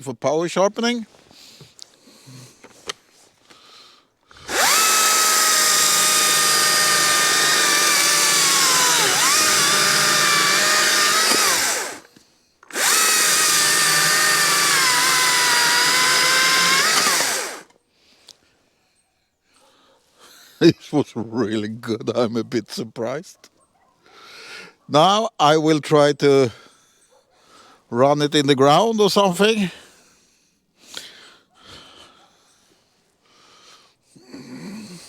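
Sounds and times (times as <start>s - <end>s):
electric chainsaw cutting log: 4.5s - 12.1s, 12.7s - 17.7s.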